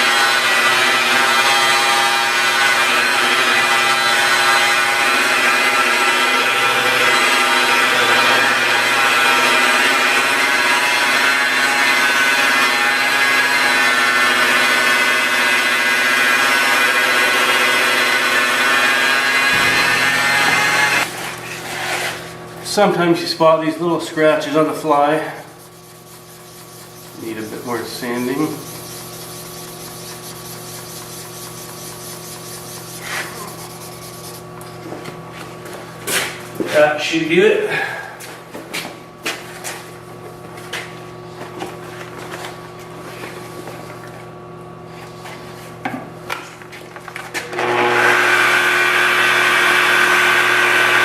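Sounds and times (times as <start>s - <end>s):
electric polishing buffer running: 0.0s - 21.2s, 25.6s - 34.1s, 47.4s - 51.0s
sandpaper rubbing on car paint: 25.2s - 34.5s.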